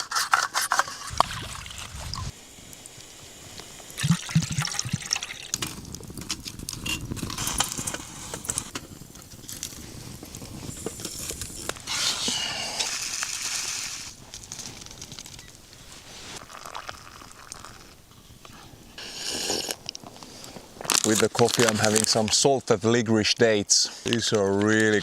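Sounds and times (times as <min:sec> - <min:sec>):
liquid pouring and sloshing: 0:01.0 - 0:02.3, 0:04.0 - 0:05.7.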